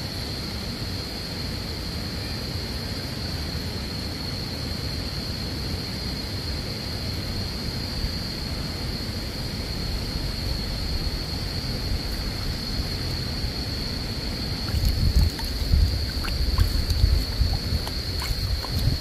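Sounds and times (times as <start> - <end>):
insects droning: 0.0 - 19.0
wind buffeting microphone: 10.2 - 19.0.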